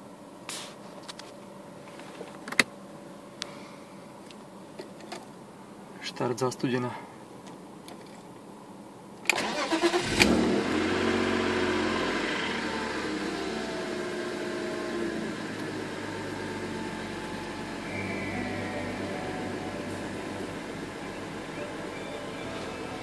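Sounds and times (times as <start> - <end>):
starter motor cranking: 9.3 - 10.4
car engine idling: 9.8 - 23.0.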